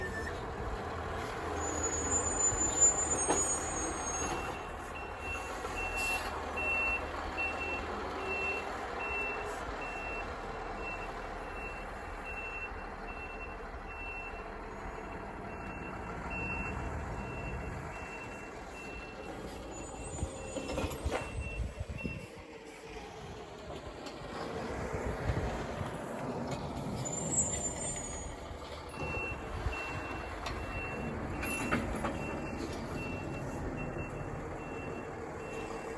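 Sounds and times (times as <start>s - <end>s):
diesel engines running: 0.0s - 35.9s
reversing alarm beeping: 1.6s - 22.3s, 29.0s - 35.9s.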